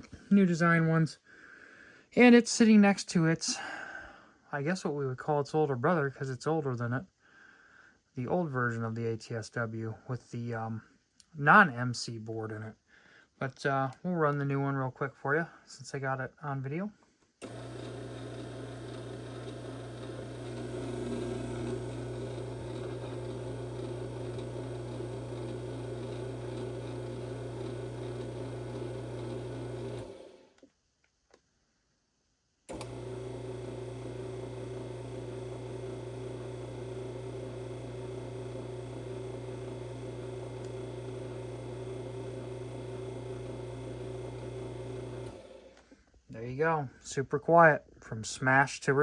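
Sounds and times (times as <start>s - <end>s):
door operator motor hum: 17.4s - 30.5s, 32.7s - 45.8s.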